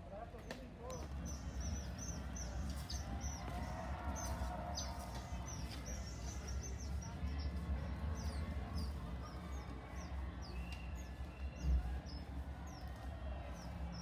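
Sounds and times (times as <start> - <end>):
small birds chirping: 0.2 - 14.0
steady low rumble: 0.8 - 14.0.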